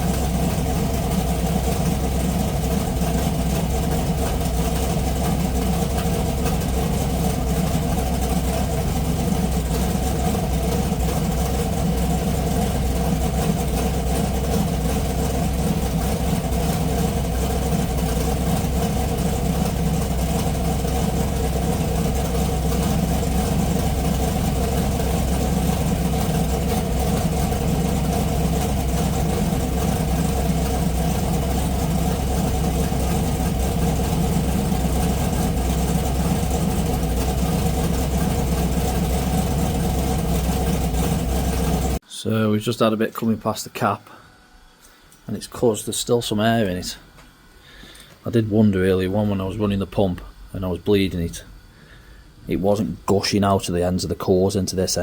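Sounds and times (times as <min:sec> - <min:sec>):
race car engine idling: 0:00.0 - 0:42.0.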